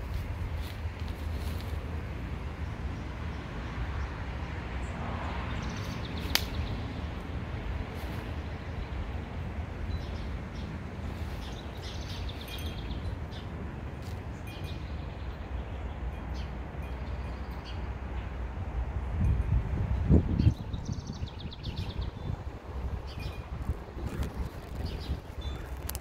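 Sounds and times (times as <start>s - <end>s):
steady low rumble: 6.1s - 26.0s.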